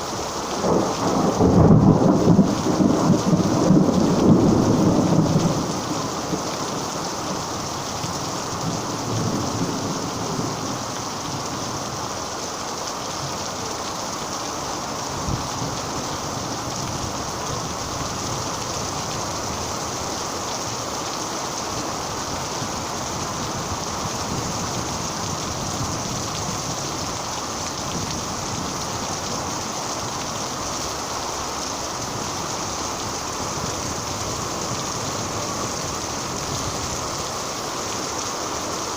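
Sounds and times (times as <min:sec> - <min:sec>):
heavy rain falling: 0:00.0 - 0:38.9
low thunder rumble: 0:00.6 - 0:05.9.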